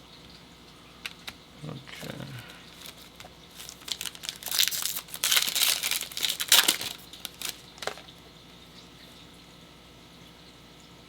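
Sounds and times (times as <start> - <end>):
foil wrapper crinkling and tearing: 2.7 - 8.2.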